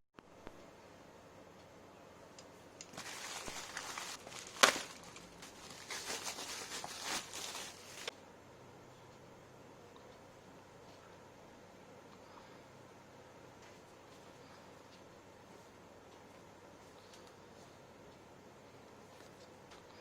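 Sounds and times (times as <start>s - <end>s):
packaging rustling: 2.8s - 8.1s.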